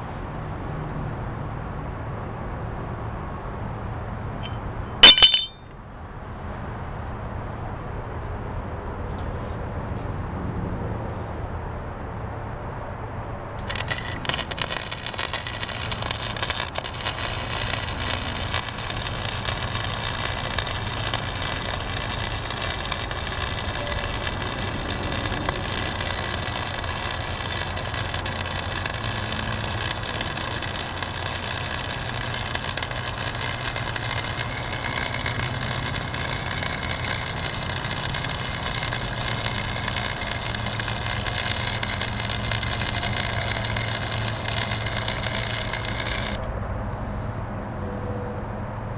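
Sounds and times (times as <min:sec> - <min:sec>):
welder hum: 0:04.4 - 0:05.6, 0:13.6 - 0:46.5
welding arc crackling: 0:13.6 - 0:46.4.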